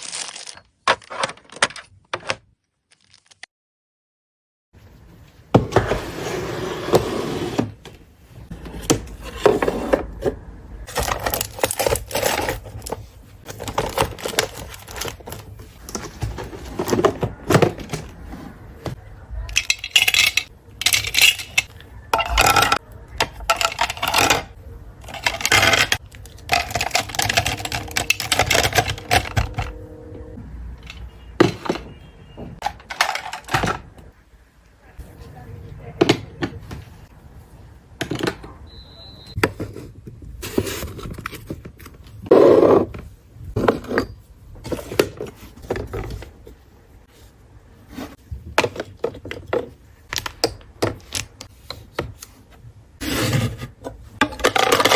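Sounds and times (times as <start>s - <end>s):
hard objects knocking and clattering: 8.6s - 29.8s, 30.8s - 34.1s, 48.4s - 52.2s, 53.7s - 54.9s.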